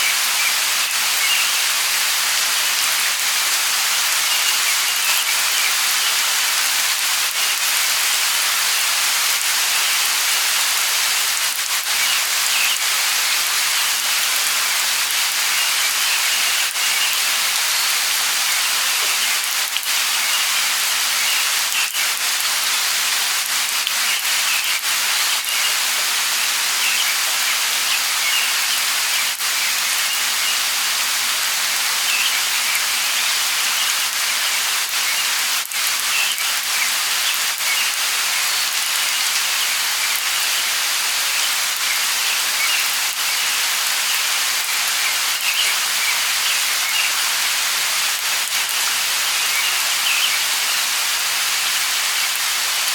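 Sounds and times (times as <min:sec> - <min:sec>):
light rain falling: 0:00.0 - 0:52.9
distant birds chirping: 0:24.0 - 0:30.6.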